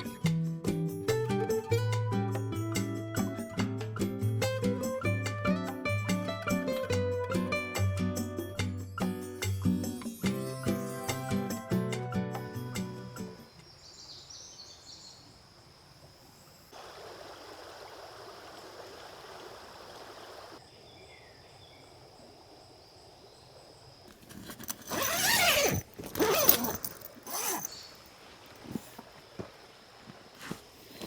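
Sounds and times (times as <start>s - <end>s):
rasping rustles: 24.1s - 27.8s.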